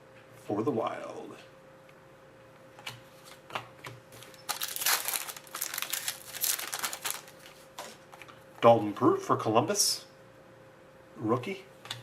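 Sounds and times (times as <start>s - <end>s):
crinkling plastic packaging: 4.2s - 8.3s.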